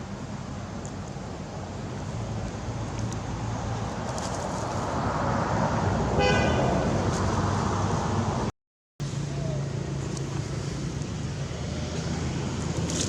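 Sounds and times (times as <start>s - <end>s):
short horn toot: 6.2s - 6.8s.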